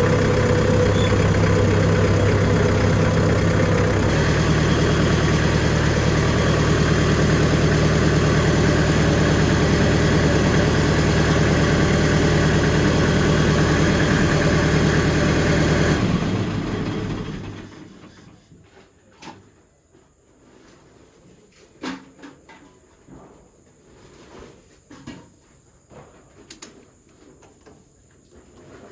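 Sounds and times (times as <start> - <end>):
tractor diesel engine idling: 0.0 - 18.2.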